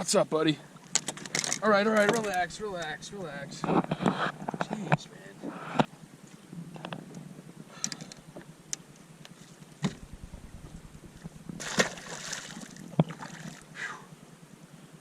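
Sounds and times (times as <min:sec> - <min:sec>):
splashy rushing burst: 0:10.0 - 0:12.9
fish thrashing on a boat: 0:10.0 - 0:13.6.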